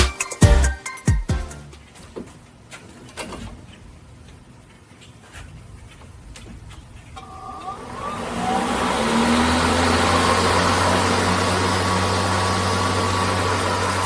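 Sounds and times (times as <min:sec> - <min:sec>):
electric lawn mower starting up: 0:07.2 - 0:14.0.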